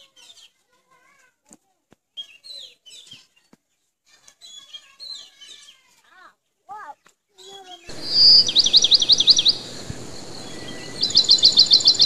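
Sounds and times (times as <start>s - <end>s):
birds chirping: 6.8s - 12.0s.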